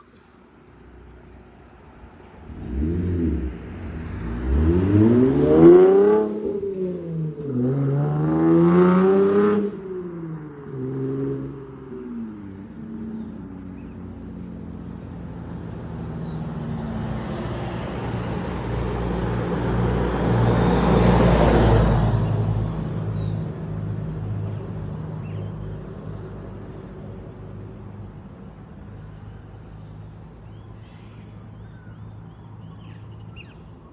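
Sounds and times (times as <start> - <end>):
car passing by: 2.0 - 9.9, 15.6 - 24.2
car engine revving: 2.3 - 13.0.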